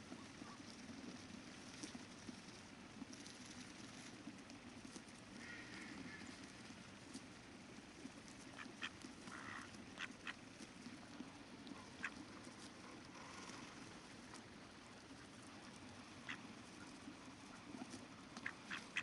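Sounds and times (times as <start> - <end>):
flowing river water: 0.0 - 19.0
ducks quacking: 5.4 - 6.3, 8.5 - 10.4, 11.7 - 13.6, 16.2 - 16.9, 18.4 - 19.0.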